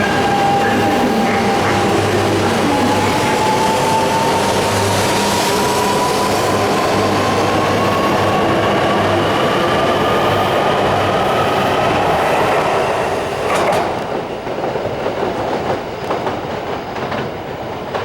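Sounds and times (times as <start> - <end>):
train whine: 0.0 - 18.0
wheel and rail noise: 0.0 - 18.0.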